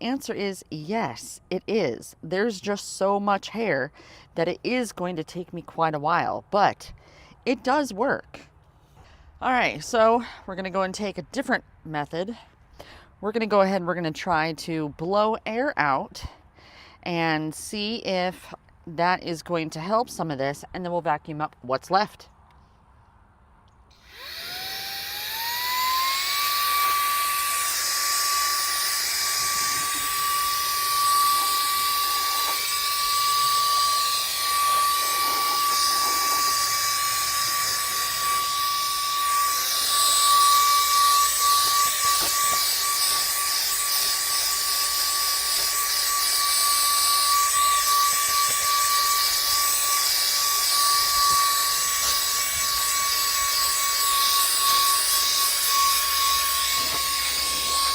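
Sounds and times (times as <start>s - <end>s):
handheld vacuum motor whine: 23.9s - 57.9s.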